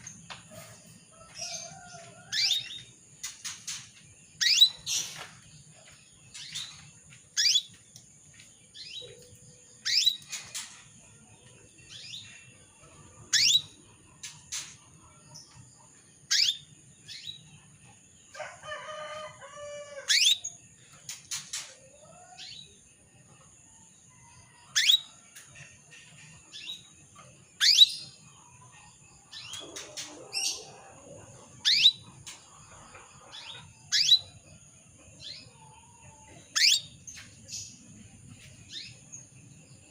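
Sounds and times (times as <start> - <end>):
canary chirp calls: 1.4 - 2.9, 4.4 - 5.2, 7.4 - 7.8, 8.8 - 10.7, 11.9 - 14.6, 16.3 - 17.4, 20.0 - 20.6, 24.7 - 25.1, 27.6 - 34.5, 35.2 - 37.8.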